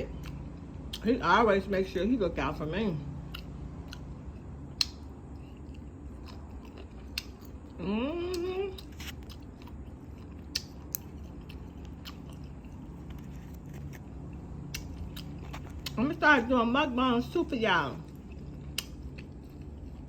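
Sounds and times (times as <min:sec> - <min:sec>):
person chewing food: 0:03.2 - 0:16.0, 0:17.9 - 0:20.0
person humming mmm: 0:07.8 - 0:08.9.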